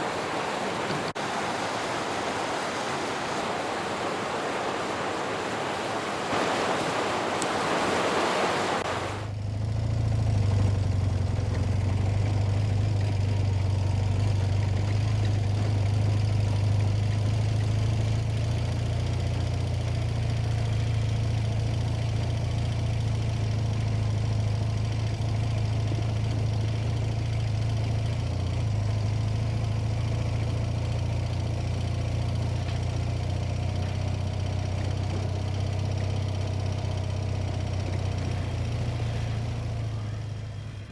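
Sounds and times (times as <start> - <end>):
rushing river water: 0.0 - 9.4, 10.2 - 40.9
motorcycle engine running: 9.2 - 40.9.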